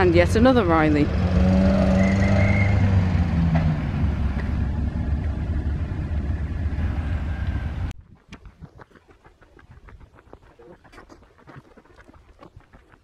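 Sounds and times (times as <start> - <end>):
car engine running: 2.6 - 7.9.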